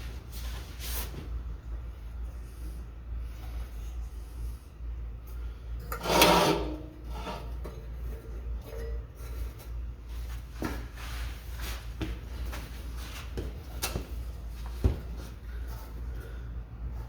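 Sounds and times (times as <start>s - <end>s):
steady low hum: 0.0s - 17.0s
loud scrape: 6.0s - 7.5s.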